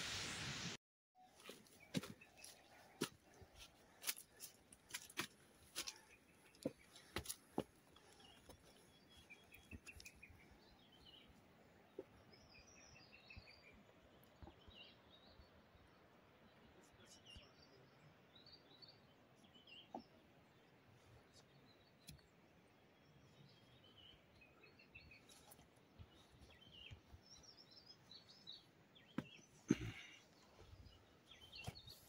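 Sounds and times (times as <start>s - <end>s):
birds chirping quietly: 1.2s - 32.0s.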